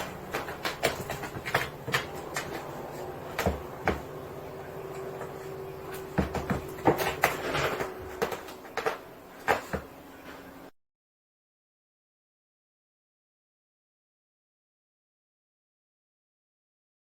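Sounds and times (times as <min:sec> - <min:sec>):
faint steady hum: 0:00.0 - 0:10.7.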